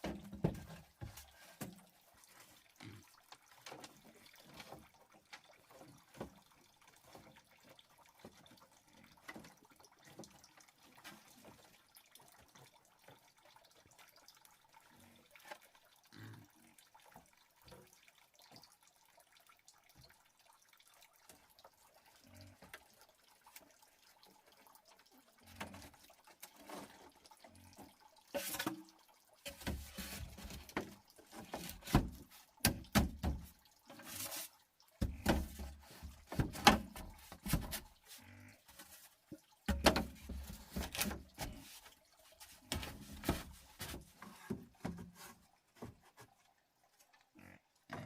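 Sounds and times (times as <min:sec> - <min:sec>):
water dripping and splashing: 0:00.0 - 0:47.9.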